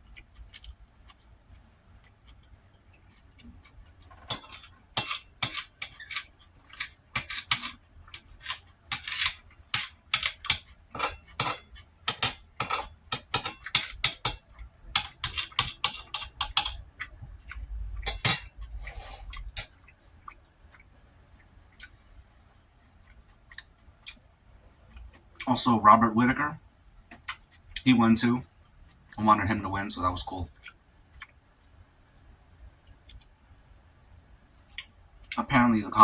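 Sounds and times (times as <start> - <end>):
cutlery clinking on a plate: 4.1 - 16.8, 18.1 - 18.5.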